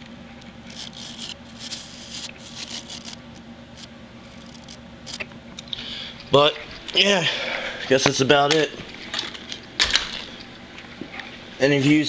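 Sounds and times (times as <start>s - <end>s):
faint steady hum: 0.0s - 12.0s
brush bristles rustling: 0.7s - 5.2s.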